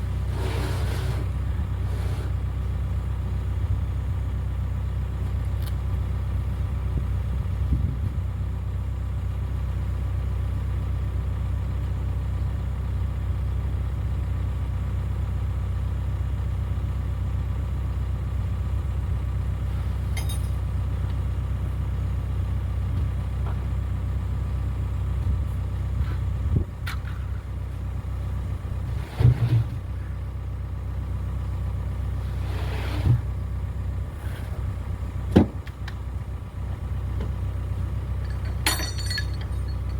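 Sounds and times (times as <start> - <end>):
excavator diesel engine running: 0.0 - 39.9
knocks and clunks: 35.3 - 36.0, 38.2 - 39.9.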